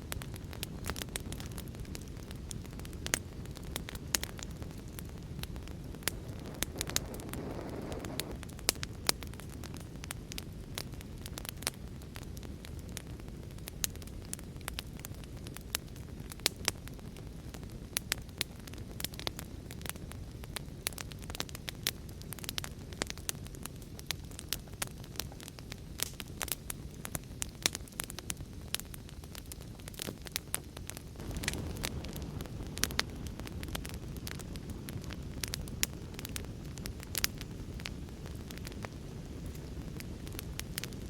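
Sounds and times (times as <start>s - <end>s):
wood fire crackling and popping: 0.0s - 41.0s
rain: 31.2s - 33.5s.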